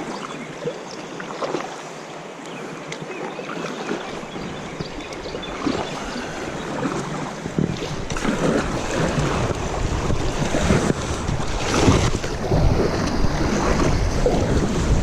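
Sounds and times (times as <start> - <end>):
river water rushing and splashing: 0.0 - 15.0
wind buffeting microphone: 4.2 - 15.0.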